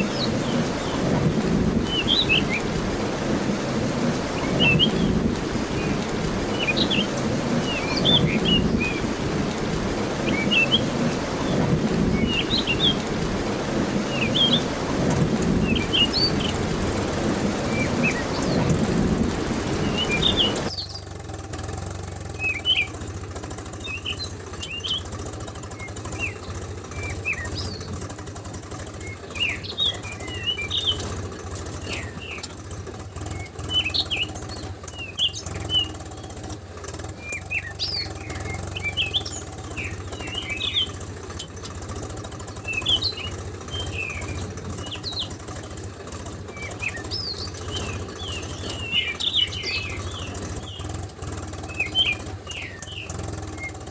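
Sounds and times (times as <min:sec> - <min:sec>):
small birds chirping: 0:00.0 - 0:53.9
steady low hum: 0:00.0 - 0:53.9.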